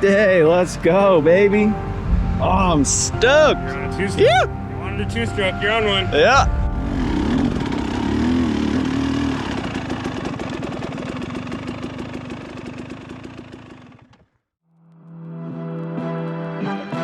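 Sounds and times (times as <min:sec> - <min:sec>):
music: 0:00.0 - 0:08.2, 0:14.7 - 0:17.0
two-stroke dirt bike engine revving: 0:06.4 - 0:14.2.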